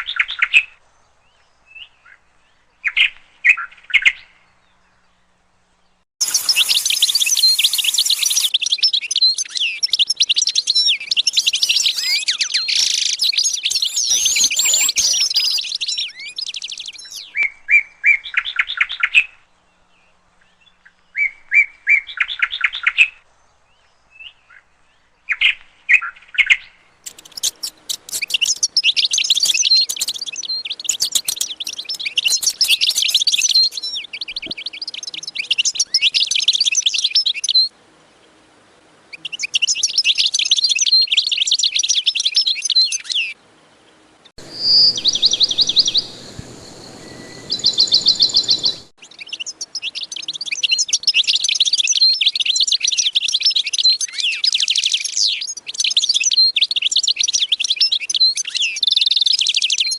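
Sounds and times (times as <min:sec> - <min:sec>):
cage birds twittering: 0:06.2 - 0:19.1, 0:27.0 - 0:38.4, 0:39.1 - 0:59.9.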